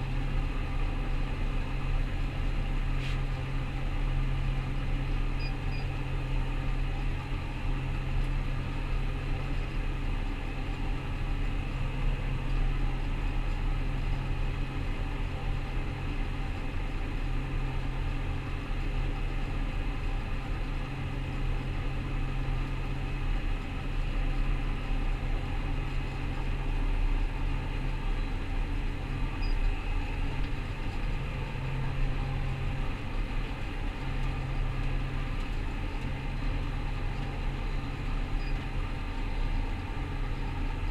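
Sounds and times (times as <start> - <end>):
combine harvester engine drone: 0.0 - 40.9.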